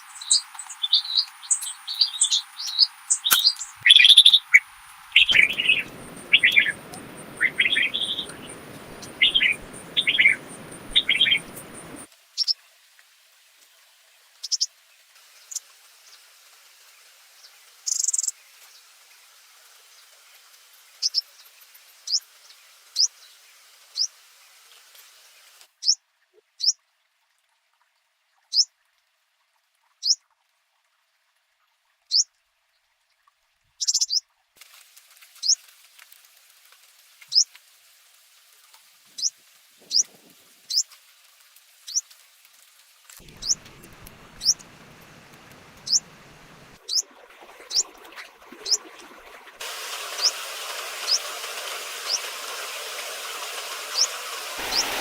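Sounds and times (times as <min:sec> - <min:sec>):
small bird chirping: 0:00.0 - 0:12.6, 0:14.4 - 0:14.7, 0:17.9 - 0:18.3, 0:33.8 - 0:34.2, 0:39.2 - 0:40.9, 0:43.2 - 0:44.9, 0:45.5 - 0:47.0, 0:50.2 - 0:50.4, 0:53.9 - 0:55.0
steady low noise: 0:04.6 - 0:12.1, 0:43.2 - 0:46.8, 0:54.6 - 0:55.0.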